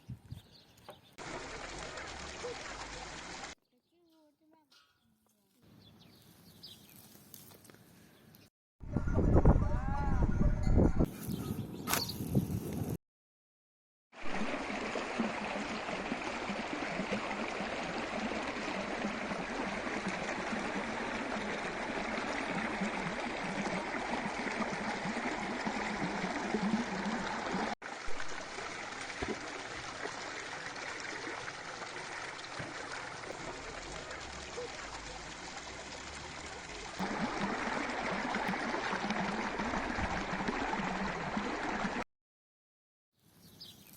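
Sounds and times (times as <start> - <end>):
stream of running water: 1.2 - 3.6, 14.2 - 42.0.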